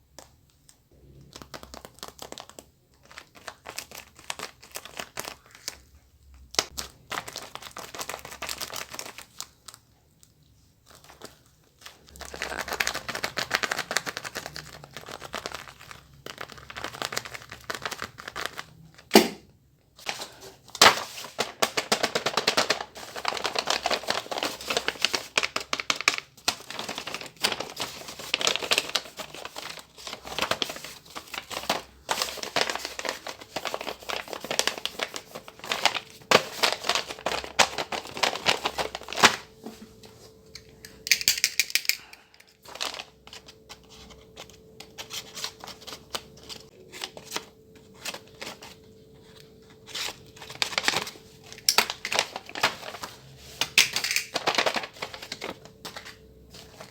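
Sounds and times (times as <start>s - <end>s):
paper crinkling and tearing: 1.0s - 5.9s, 6.5s - 9.8s, 10.8s - 19.2s, 20.0s - 39.7s, 42.1s - 56.9s
faint steady hum: 18.8s - 56.9s.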